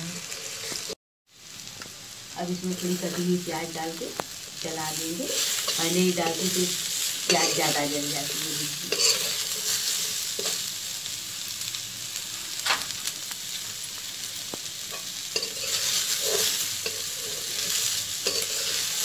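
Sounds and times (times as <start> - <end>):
vegetables sizzling in oil: 0.0 - 19.0
spatula scraping and tapping pan: 14.9 - 19.0.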